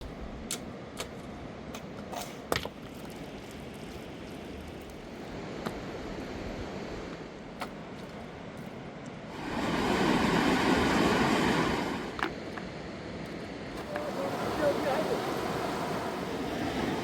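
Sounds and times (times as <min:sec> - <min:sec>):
river rushing: 0:09.2 - 0:17.0.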